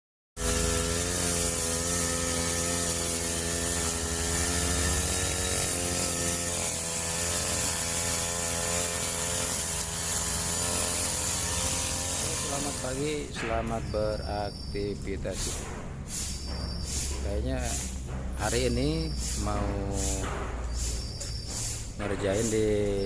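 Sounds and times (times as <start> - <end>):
grass trimmer engine running: 0.4 - 13.1.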